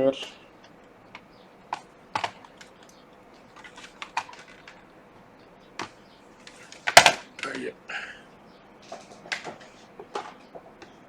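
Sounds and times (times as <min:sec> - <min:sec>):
plastic clicks of laptop case: 0:01.2 - 0:04.8, 0:05.8 - 0:07.6.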